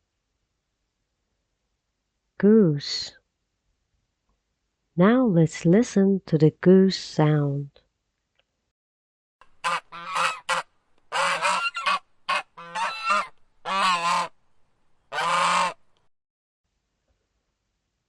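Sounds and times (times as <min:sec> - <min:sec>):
goose honking: 0:09.6 - 0:14.3, 0:15.1 - 0:15.8.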